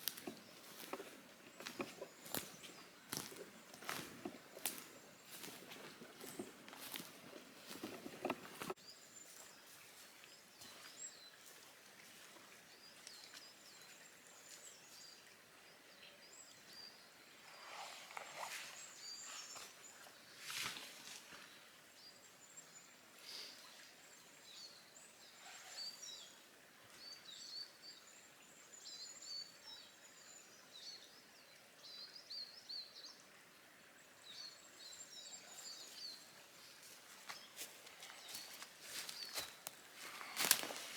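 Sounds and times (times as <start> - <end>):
small birds chirping: 0.0 - 33.2, 34.2 - 40.9.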